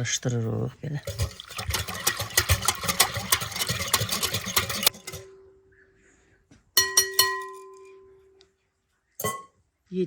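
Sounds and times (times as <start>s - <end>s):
utensil whisking in a bowl: 0.2s - 5.3s
bowl ringing: 6.8s - 8.4s.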